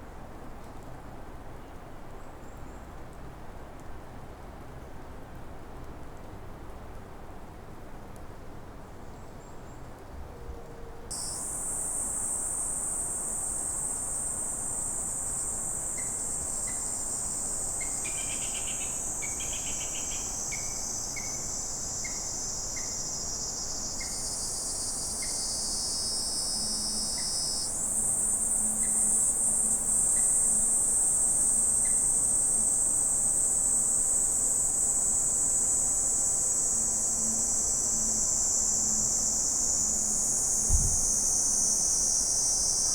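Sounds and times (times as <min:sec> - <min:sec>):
insects buzzing drone: 0:11.1 - 0:42.9.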